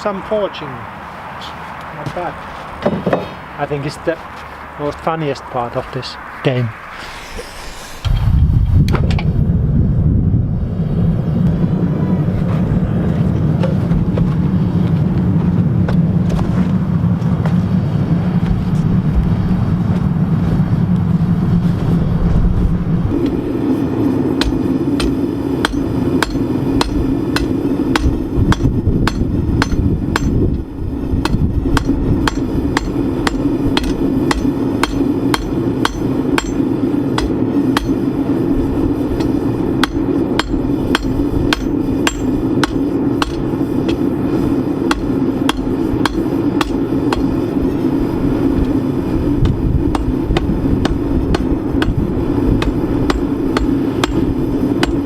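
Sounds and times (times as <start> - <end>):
steady drone: 3.4 - 55.0
hammer striking iron on anvil: 24.4 - 30.4, 31.2 - 38.0, 39.2 - 44.1, 44.9 - 47.4, 49.4 - 52.0, 52.6 - 55.0.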